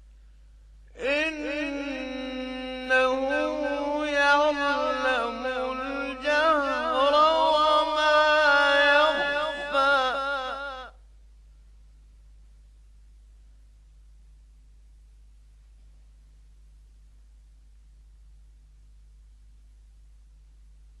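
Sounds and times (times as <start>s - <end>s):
man reciting in melodic chant: 1.0s - 11.0s.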